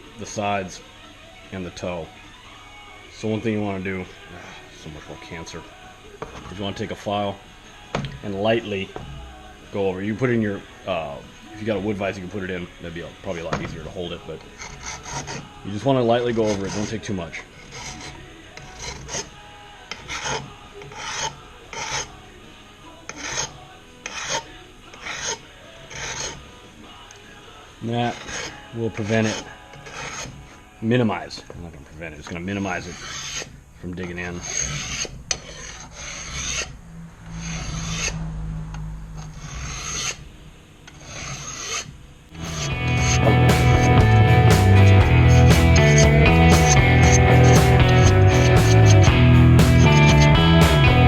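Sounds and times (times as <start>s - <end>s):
music: 0.0s - 32.8s, 42.3s - 51.0s
hand file rasping on metal: 13.3s - 15.6s, 16.2s - 22.2s, 23.1s - 26.5s, 28.0s - 30.6s, 32.6s - 38.2s, 39.3s - 40.2s, 40.9s - 51.0s.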